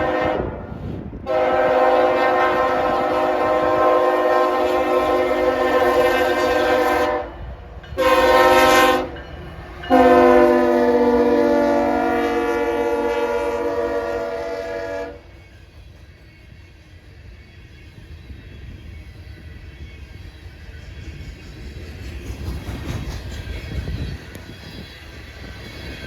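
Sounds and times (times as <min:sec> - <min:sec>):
locomotive air horn blasts: 0:00.0 - 0:09.2, 0:09.9 - 0:15.3
low train rumble: 0:00.0 - 0:26.0.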